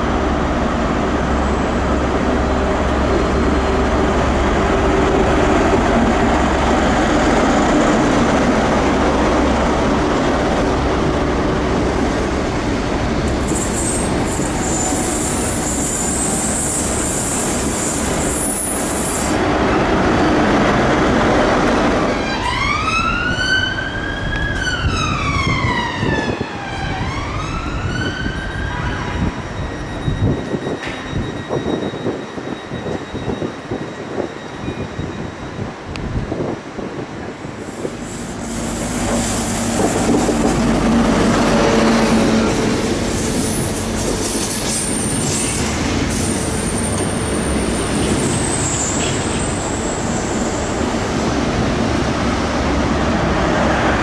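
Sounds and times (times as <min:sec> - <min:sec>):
train rumbling past: 0:00.0 - 0:54.0
wailing siren: 0:22.2 - 0:29.5.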